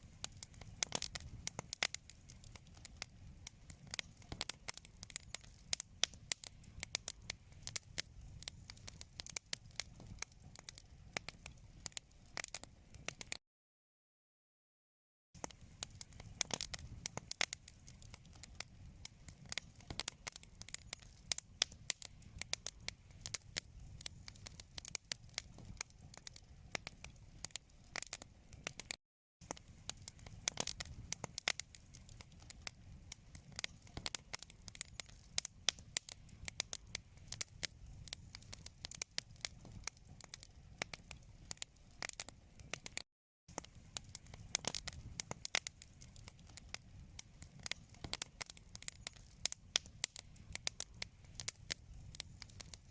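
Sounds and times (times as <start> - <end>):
low rumble of flames: 0.0 - 13.4, 15.4 - 52.9
wood fire crackling and popping: 0.0 - 13.4, 15.4 - 52.9.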